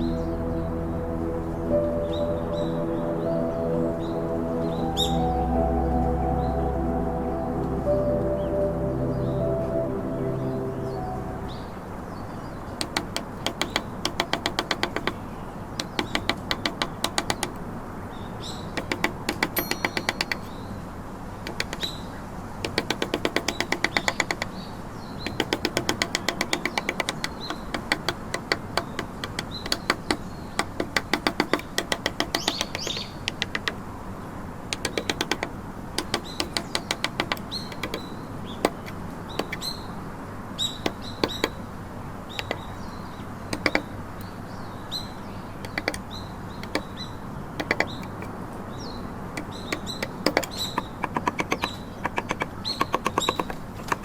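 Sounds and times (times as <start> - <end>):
chisel tapping into wood: 12.8 - 15.2, 15.8 - 17.6, 18.8 - 20.5, 21.5 - 21.9, 22.6 - 24.5, 25.2 - 33.8, 34.7 - 39.7, 40.8 - 41.6, 42.4 - 42.7, 43.5 - 43.9, 45.6 - 46.0, 46.6 - 46.9, 47.6 - 48.4, 49.4 - 54.0.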